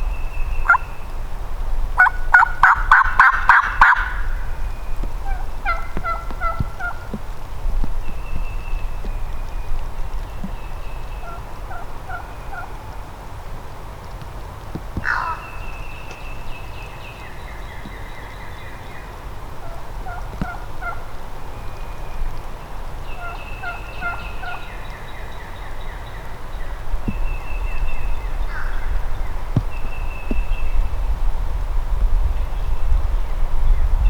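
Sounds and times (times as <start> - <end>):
light bird calls: 0.0 - 34.0
turkey gobbling: 0.6 - 1.0, 2.0 - 7.2, 11.2 - 13.1, 15.0 - 15.8, 19.6 - 21.2, 23.2 - 29.2.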